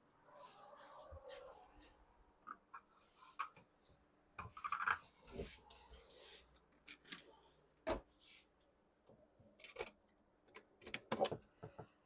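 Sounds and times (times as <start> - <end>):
small objects clicking and scraping: 4.4 - 5.2.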